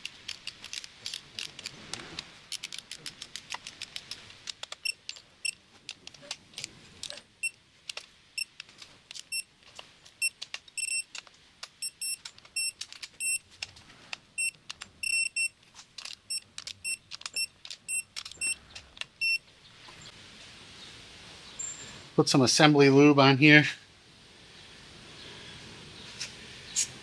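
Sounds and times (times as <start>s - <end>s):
ratchet wrench clicking: 2.5s - 5.6s.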